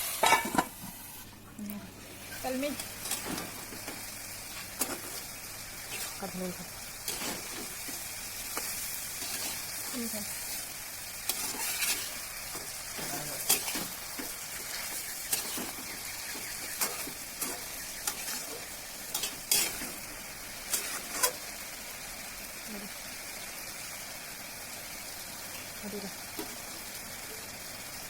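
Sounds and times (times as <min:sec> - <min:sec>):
food sizzling in oil: 0:00.0 - 0:28.0
spatula scraping pan: 0:02.2 - 0:21.5.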